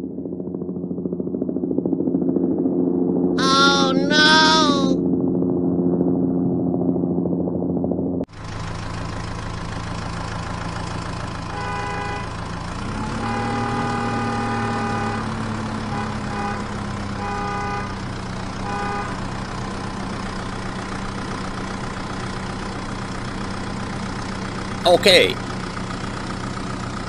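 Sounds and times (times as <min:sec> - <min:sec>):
engine idling: 0:08.3 - 0:12.8
vehicle horn honking: 0:11.5 - 0:12.4, 0:13.0 - 0:18.0, 0:18.6 - 0:19.2.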